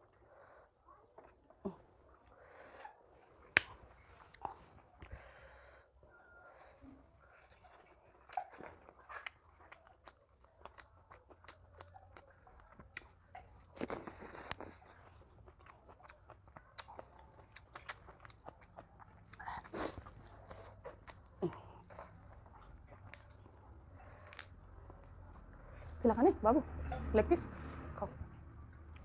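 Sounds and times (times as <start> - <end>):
person chewing crunchy food: 7.4 - 25.6.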